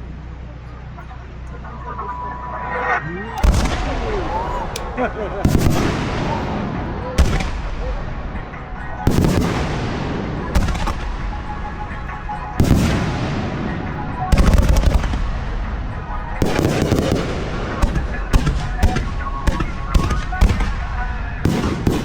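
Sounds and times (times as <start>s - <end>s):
crackling bangs: 3.4s - 22.0s
fireworks bursting: 3.4s - 22.0s
music from loudspeakers: 6.5s - 22.0s.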